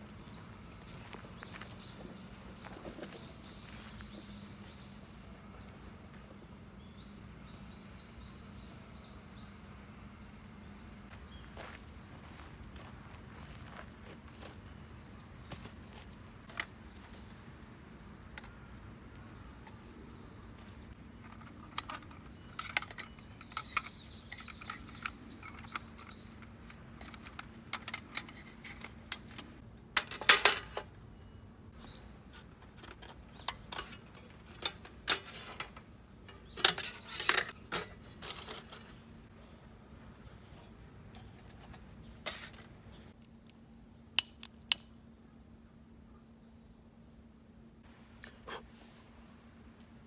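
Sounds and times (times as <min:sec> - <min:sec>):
camping gear clicks and clinks: 0:20.6 - 0:31.1, 0:32.3 - 0:39.0, 0:40.6 - 0:43.0.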